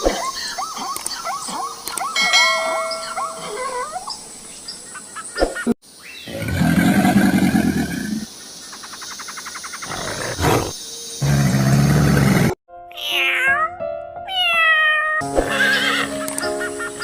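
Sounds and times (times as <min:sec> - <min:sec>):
birds chirping: 0:00.0 - 0:12.6
big cat roaring: 0:09.9 - 0:12.6.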